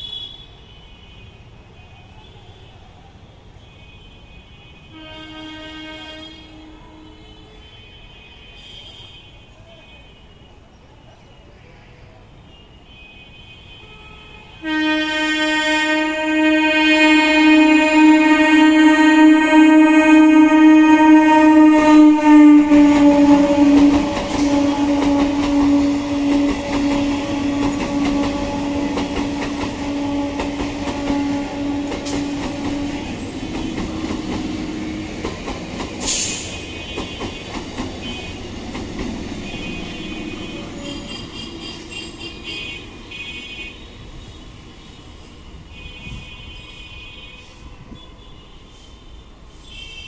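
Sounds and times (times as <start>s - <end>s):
train horn blast: 4.7s - 9.3s, 13.0s - 45.0s, 45.7s - 50.0s
train coaches rumbling past: 4.9s - 7.4s, 14.4s - 50.0s.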